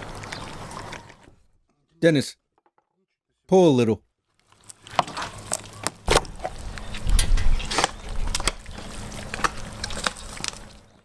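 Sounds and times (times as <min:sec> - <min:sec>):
knife cracking through carcass: 0:04.6 - 0:06.6.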